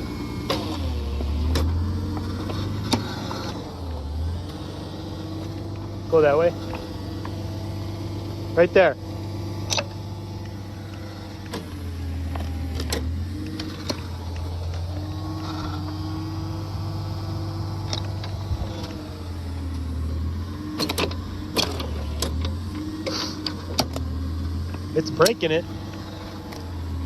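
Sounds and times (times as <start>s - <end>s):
engine-driven auger boring: 0.0s - 27.0s
sharp clicks and knocks: 9.6s - 14.9s, 20.7s - 24.1s.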